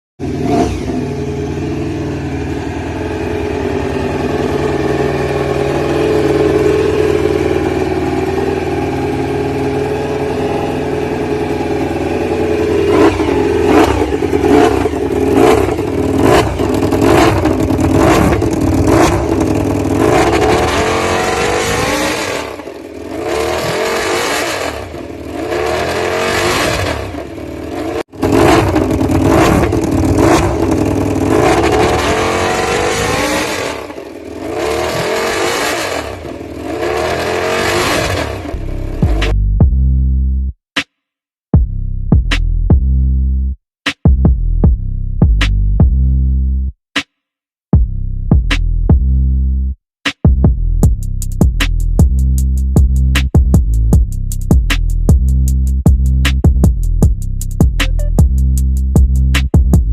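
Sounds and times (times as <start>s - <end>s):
motorcycle throttle blips: 0.2s - 22.6s, 28.2s - 33.9s
motorcycle engine idling: 0.2s - 23.7s, 24.8s - 26.0s, 27.0s - 34.8s.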